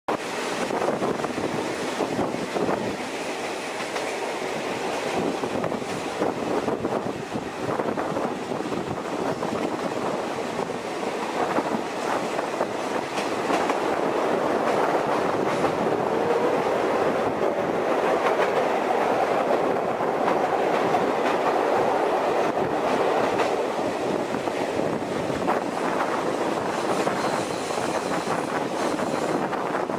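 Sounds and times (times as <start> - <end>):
train rolling rumble: 0.1 - 29.9
wheels clacking over rails: 8.8 - 29.6.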